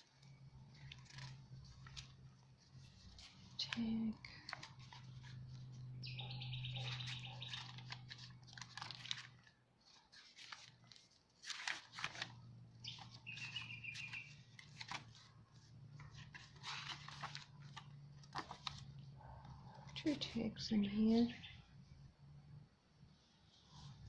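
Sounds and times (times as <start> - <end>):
paper rustling and crinkling: 0.0 - 6.0, 6.8 - 20.4
bird chirping trills: 5.7 - 7.9, 12.8 - 14.5.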